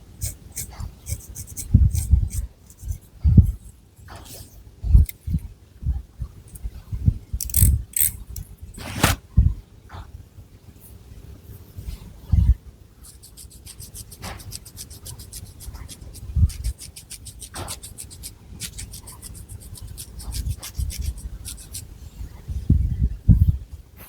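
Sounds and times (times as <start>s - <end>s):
fingernails scratching through hair: 0.2s - 3.0s, 8.8s - 9.2s, 13.0s - 21.8s.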